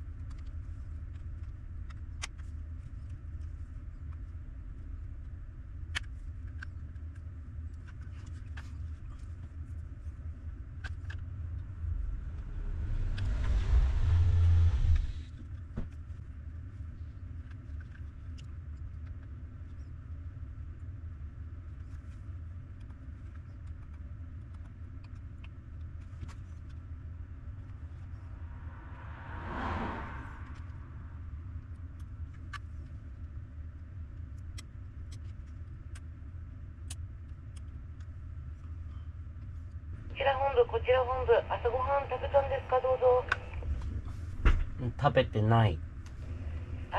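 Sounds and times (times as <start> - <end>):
low engine rumble: 0.0 - 46.9
vehicle passing: 11.2 - 15.5, 27.6 - 32.4, 46.0 - 46.9.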